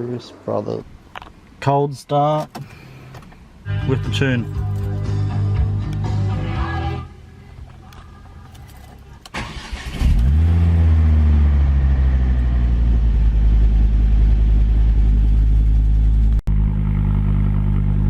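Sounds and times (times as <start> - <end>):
car engine revving and idling: 3.7 - 18.0
starter motor cranking: 9.3 - 10.5.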